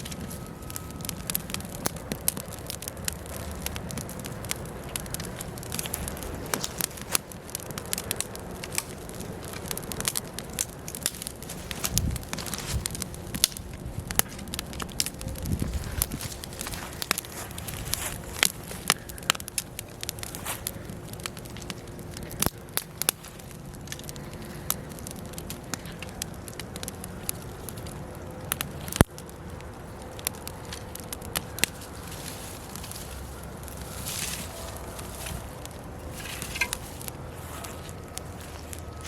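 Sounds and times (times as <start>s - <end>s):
logs crackling in fireplace: 0.0s - 39.0s.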